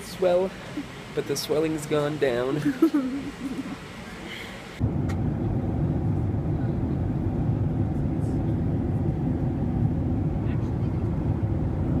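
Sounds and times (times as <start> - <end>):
airliner cabin engine rumble: 2.7 - 12.0.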